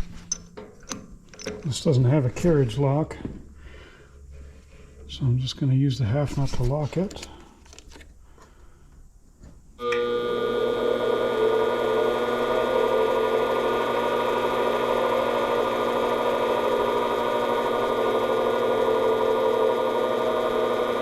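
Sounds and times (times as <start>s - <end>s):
metal lathe motor whining: 9.8s - 21.0s.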